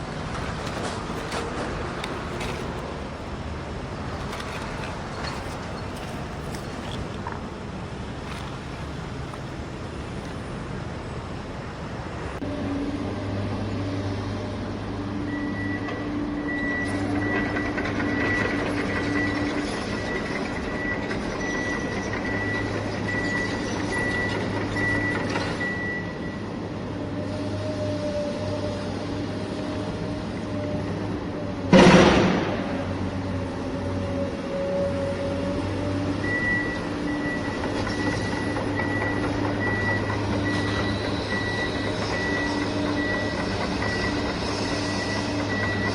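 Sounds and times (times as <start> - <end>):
vehicle engine hum: 0.0 - 45.9
sudden loud sound: 31.7 - 33.1.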